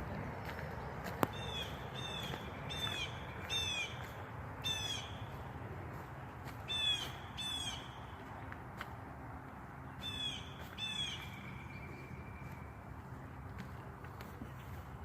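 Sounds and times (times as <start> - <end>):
bird calling: 1.3 - 4.0, 4.6 - 5.3, 6.7 - 8.0, 10.0 - 12.7.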